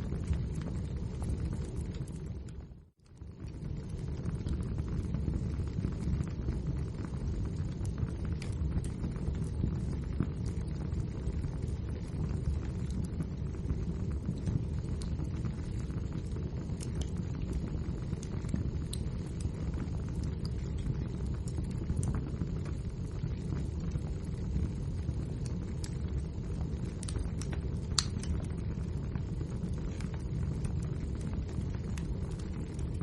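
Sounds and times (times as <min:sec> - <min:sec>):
fire rumbling: 0:00.0 - 0:33.0
logs crackling and popping: 0:00.0 - 0:33.0.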